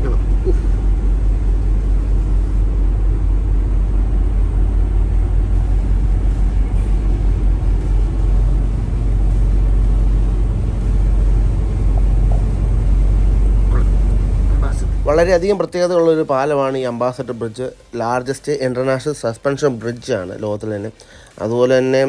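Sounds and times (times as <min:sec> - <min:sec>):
truck diesel engine rumble: 0:00.0 - 0:15.7
road noise: 0:00.0 - 0:18.7.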